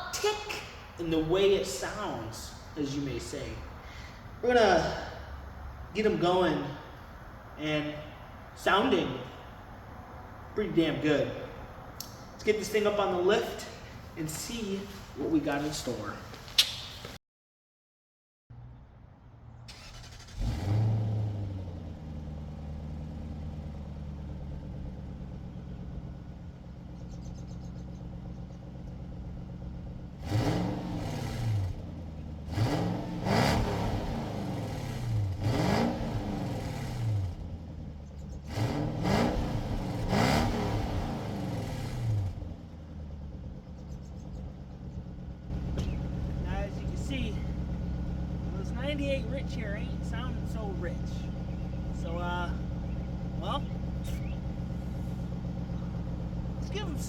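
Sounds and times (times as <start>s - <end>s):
car engine idling: 0.0s - 17.1s, 19.3s - 57.0s
car engine revving: 19.7s - 26.9s, 27.8s - 57.0s.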